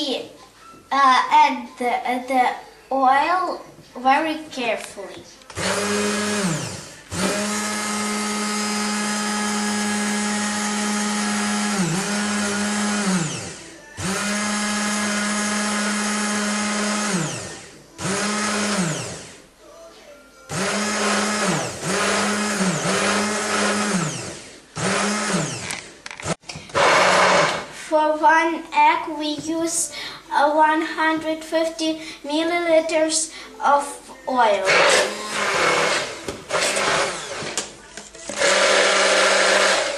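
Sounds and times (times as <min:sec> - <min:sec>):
electric blender motor whirring: 0:05.5 - 0:19.4, 0:20.5 - 0:27.7, 0:34.7 - 0:37.7, 0:38.3 - 0:39.9.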